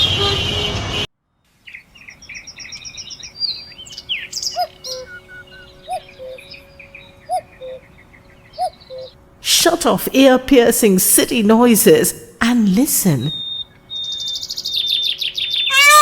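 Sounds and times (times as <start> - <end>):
city traffic noise: 0.0 - 2.1, 4.0 - 14.5
birds chirping and trilling: 1.4 - 9.4, 12.6 - 16.0.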